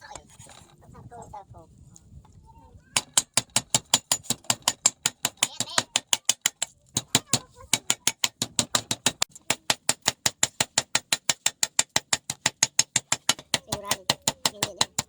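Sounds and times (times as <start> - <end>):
faint voice: 7.0 - 7.9.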